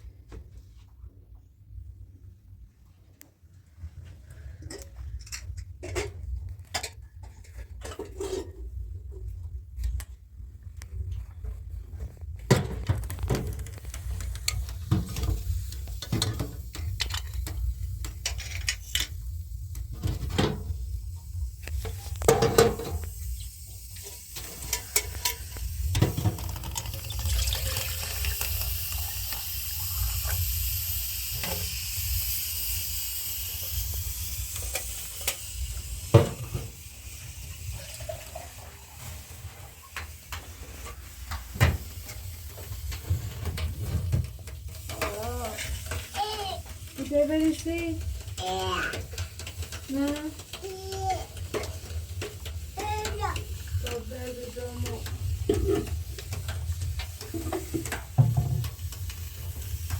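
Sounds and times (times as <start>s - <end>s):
pots clattering and knocking: 11.1s - 30.6s, 33.6s - 59.9s
running water hiss: 13.2s - 59.9s.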